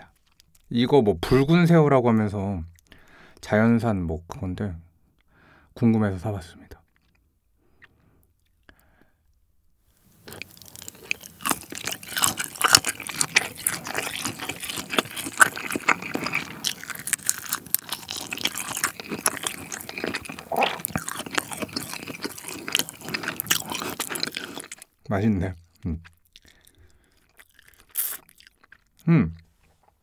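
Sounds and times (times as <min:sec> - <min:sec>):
chewing shrimp shell crunches: 0:00.0 - 0:00.7, 0:06.9 - 0:08.9, 0:10.2 - 0:25.0, 0:25.6 - 0:29.1
wet mouth sounds: 0:10.2 - 0:24.9, 0:25.6 - 0:30.0.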